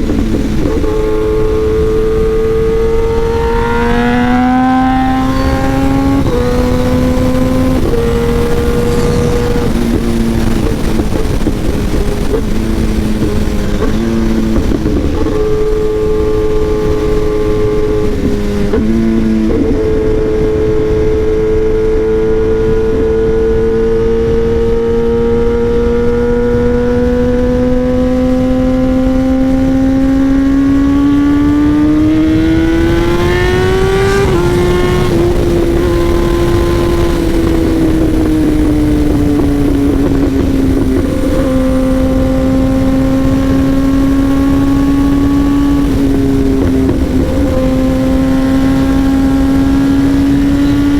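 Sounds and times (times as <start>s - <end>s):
gear change: 0.0s - 50.9s
motorcycle engine revving: 0.0s - 50.9s.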